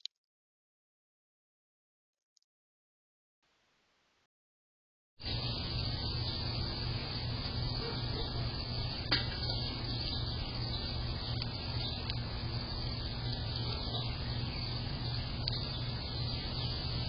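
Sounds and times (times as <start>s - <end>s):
constant low hum: 5.2s - 17.0s.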